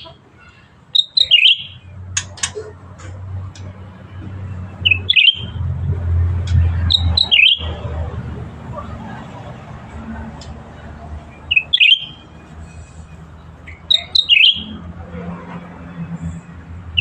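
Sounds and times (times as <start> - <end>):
bulbul singing: 0.0 - 2.7, 4.7 - 5.7, 6.4 - 7.8, 11.2 - 14.8.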